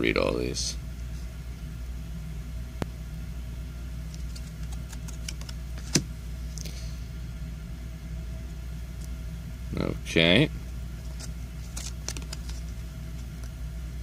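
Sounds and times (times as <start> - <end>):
low background hum: 0.0 - 14.0
cards clicking and tapping: 4.1 - 6.1, 11.1 - 13.6.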